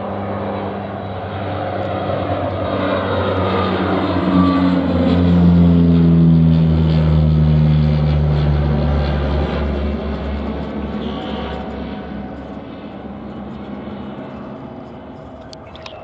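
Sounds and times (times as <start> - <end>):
aircraft passing close by: 0.0 - 16.0.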